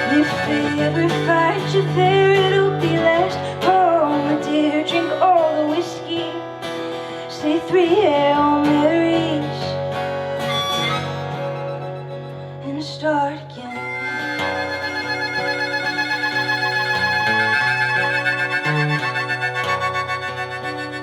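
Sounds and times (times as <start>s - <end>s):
country-folk band playing: 0.0s - 4.3s, 8.5s - 12.8s, 13.6s - 21.0s
acoustic guitar: 0.0s - 21.0s
sliding melody line: 10.4s - 11.8s, 13.7s - 21.0s.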